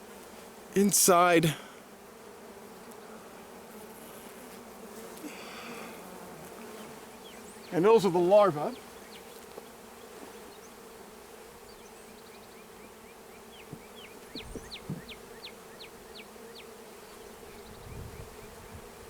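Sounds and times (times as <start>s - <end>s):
honey bees buzzing: 0.0s - 19.0s
bird chirping: 7.1s - 8.0s, 11.7s - 18.3s
soft knocks of hive frames: 13.5s - 16.6s.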